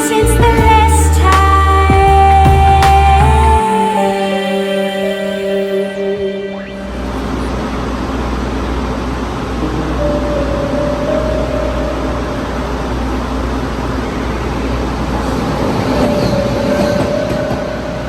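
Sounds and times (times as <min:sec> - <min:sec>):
faint steady whine: 0:03.6 - 0:18.0
train wheels rumbling on rails: 0:14.8 - 0:18.0.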